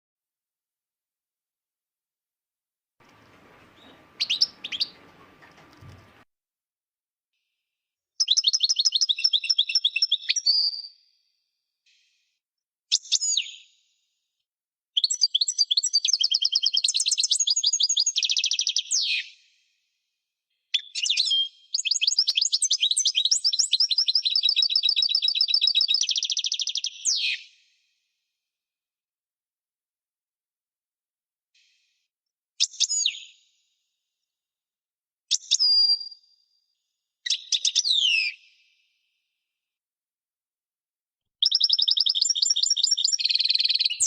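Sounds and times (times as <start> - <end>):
goldfinch twittering trills: 3.1 - 6.2.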